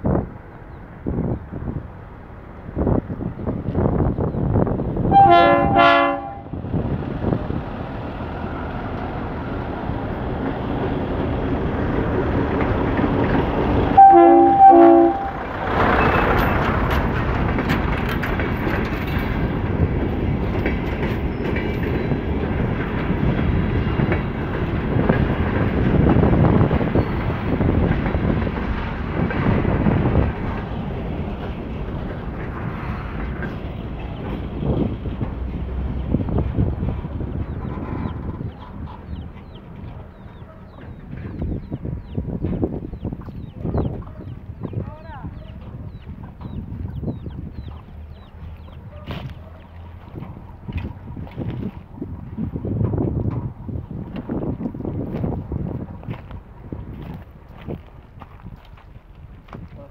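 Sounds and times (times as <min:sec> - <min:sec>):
train coaches rumbling past: 0:00.0 - 0:59.9
train horn blasts: 0:05.1 - 0:06.6, 0:14.0 - 0:15.5
wheels clicking over rails: 0:15.3 - 0:44.2.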